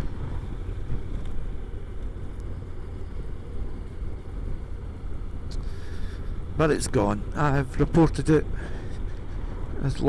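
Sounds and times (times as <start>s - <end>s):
wind rumble on microphone: 0.0s - 5.5s.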